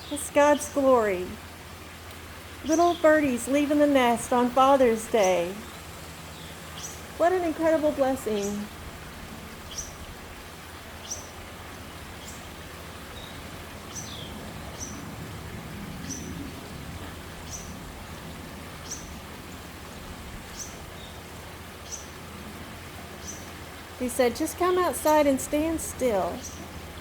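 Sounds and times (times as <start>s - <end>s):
low background hum: 0.0s - 27.0s
bird chirping: 4.2s - 7.0s.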